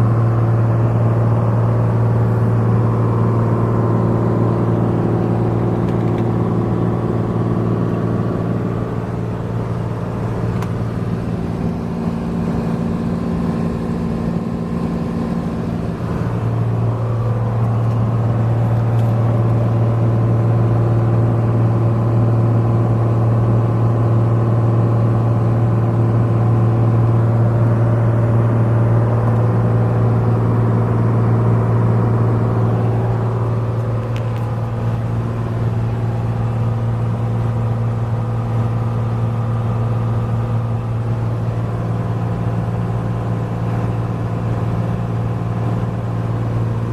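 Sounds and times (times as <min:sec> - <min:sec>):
propeller plane engine droning: 0:00.0 - 0:46.9.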